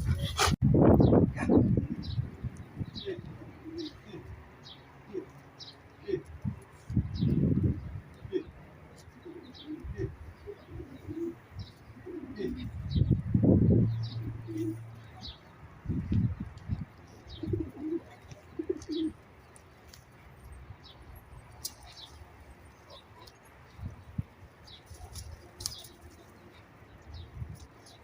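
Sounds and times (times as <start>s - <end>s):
small birds chirping: 0.0s - 28.0s
pigeons cooing: 2.8s - 6.6s, 7.2s - 15.5s, 17.1s - 19.5s.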